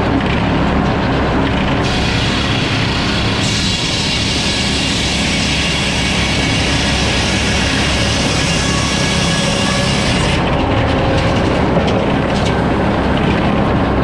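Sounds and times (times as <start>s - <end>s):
sawmill machine drone: 0.0s - 14.0s
saw blade hissing through log: 1.8s - 10.4s.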